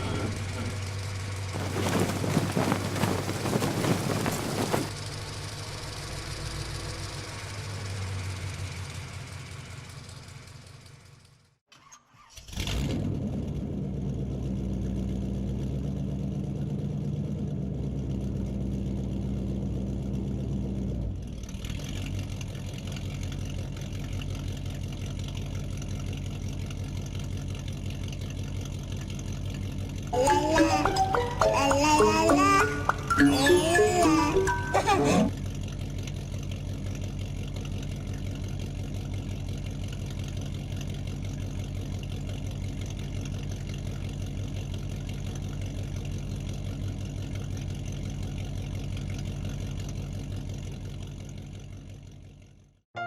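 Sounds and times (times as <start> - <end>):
vehicle engine running: 0.0 - 11.5, 13.5 - 30.1, 35.2 - 52.8
engine starting: 11.7 - 13.2.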